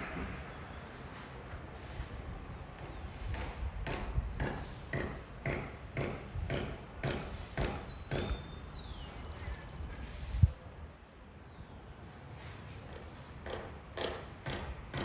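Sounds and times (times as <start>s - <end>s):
wind rumbling on microphone: 2.0s - 4.8s, 9.4s - 11.0s
high bird trill: 8.6s - 10.1s.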